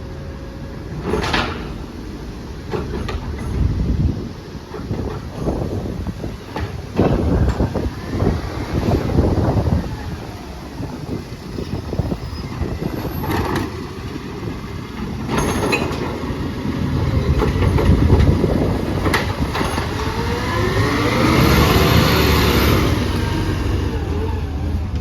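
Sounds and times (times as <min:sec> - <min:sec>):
garbage truck engine rumbling: 0:00.0 - 0:25.0
truck revving whine: 0:05.4 - 0:25.0
sharp knocks and clatters: 0:14.9 - 0:16.4.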